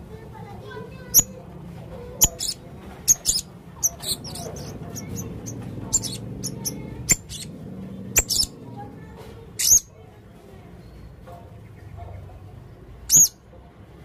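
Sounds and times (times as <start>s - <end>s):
parrot chirping: 1.1s - 1.4s, 2.2s - 8.6s, 9.6s - 9.9s, 13.1s - 13.4s.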